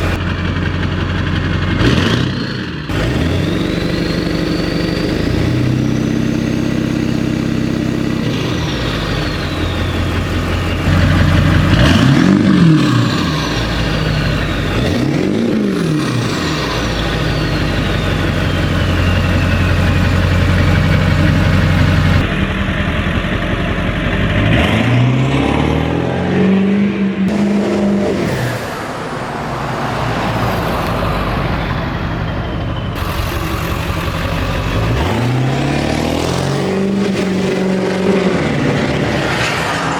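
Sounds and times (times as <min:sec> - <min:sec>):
diesel engine idling and revving: 0:00.0 - 0:39.9
turbo whistle: 0:02.9 - 0:07.2, 0:07.9 - 0:22.2.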